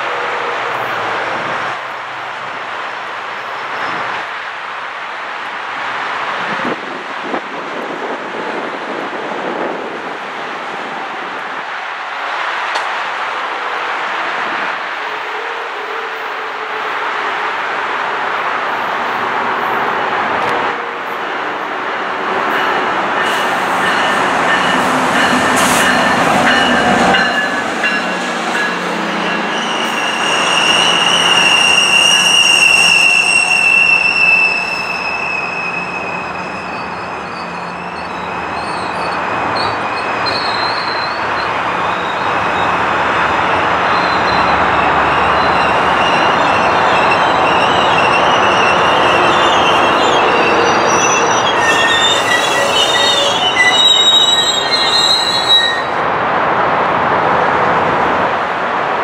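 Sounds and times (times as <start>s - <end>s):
train wheels rumbling: 18.7s - 56.0s
high wheel squeals: 22.6s - 42.8s, 43.8s - 56.0s.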